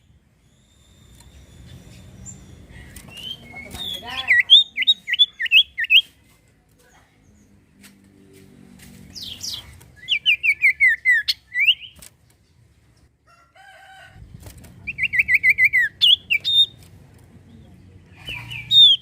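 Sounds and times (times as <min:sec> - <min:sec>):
bird whistling song: 0:00.0 - 0:06.1, 0:09.2 - 0:12.0, 0:14.9 - 0:16.8, 0:18.2 - 0:19.0.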